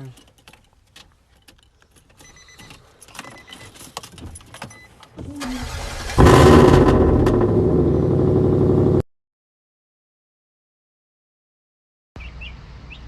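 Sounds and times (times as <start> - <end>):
light clicking and rattling: 0.0 - 5.2
truck engine cranking and starting: 1.5 - 9.0.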